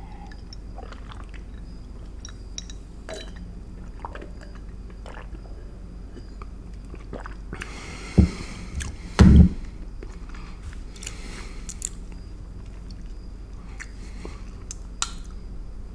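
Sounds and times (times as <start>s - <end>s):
wet chewing clicks and squishes: 0.2s - 7.7s, 10.9s - 13.2s
loud dull thumps: 8.1s - 8.4s, 9.2s - 9.7s.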